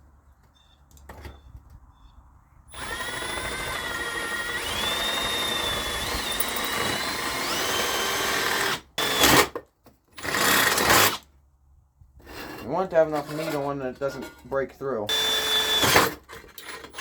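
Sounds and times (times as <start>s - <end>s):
electric drill boring through metal: 2.7s - 9.6s, 10.2s - 11.2s, 15.1s - 17.0s.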